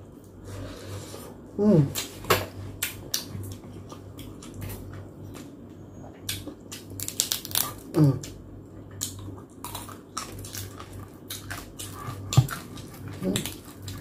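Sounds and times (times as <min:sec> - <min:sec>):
chewing and crunching crispy food: 0:01.9 - 0:14.0
person humming: 0:07.9 - 0:08.3.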